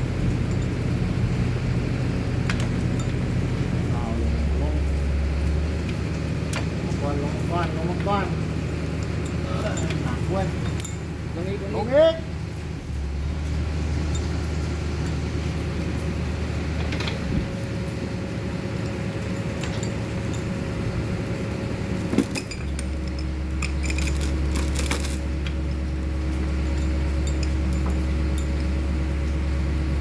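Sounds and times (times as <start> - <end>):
steady low hum: 0.0 - 30.0
metal chain clinking: 9.2 - 11.1, 14.0 - 15.2, 19.5 - 20.6, 22.0 - 28.8.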